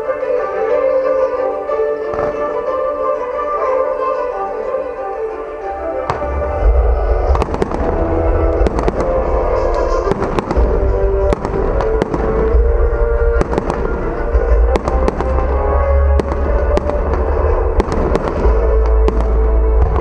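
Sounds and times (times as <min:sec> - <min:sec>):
music playing: 0:00.0 - 0:20.0
deep rumble: 0:06.1 - 0:20.0
fireworks bangs and pops: 0:06.1 - 0:20.0.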